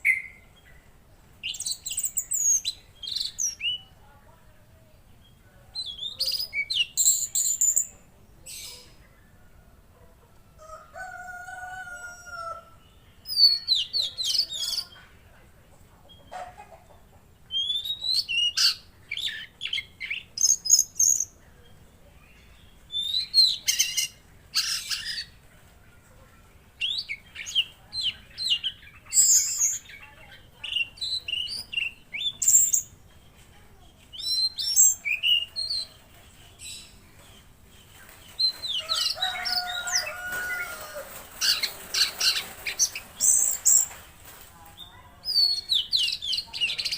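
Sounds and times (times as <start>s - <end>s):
bird high chirping song: 0.0s - 4.1s, 5.2s - 8.9s, 17.5s - 25.4s, 26.7s - 40.8s, 44.8s - 46.9s.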